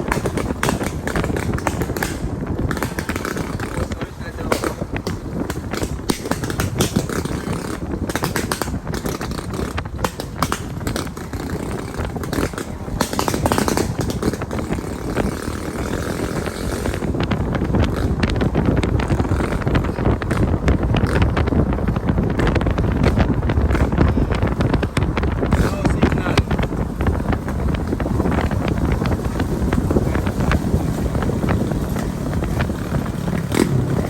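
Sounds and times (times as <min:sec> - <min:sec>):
motorcycle engine rumble: 0:00.0 - 0:34.0
wind buffeting microphone: 0:00.0 - 0:34.0.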